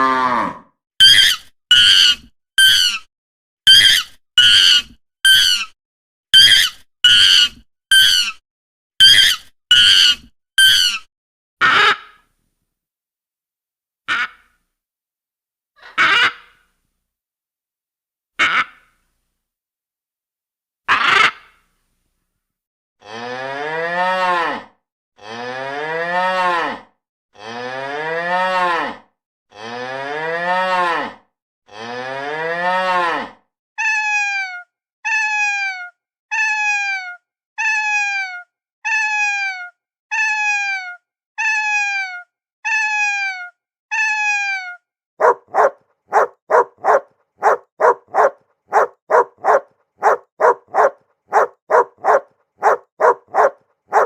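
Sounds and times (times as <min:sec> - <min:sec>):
cow mooing: 0:00.0 - 0:00.7, 0:45.2 - 0:54.0
dog barking rapidly: 0:45.2 - 0:54.0.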